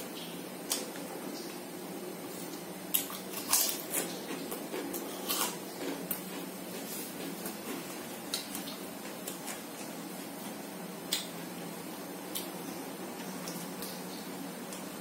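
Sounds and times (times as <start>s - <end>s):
steady low hum: 0.0s - 15.0s
wet chewing and lip smacks: 2.5s - 9.9s.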